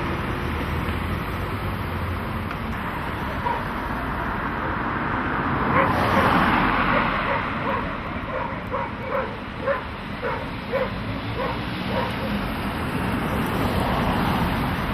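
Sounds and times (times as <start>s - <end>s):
road traffic: 0.0s - 14.9s
dog barking: 3.4s - 3.7s, 5.7s - 6.3s, 6.9s - 12.4s.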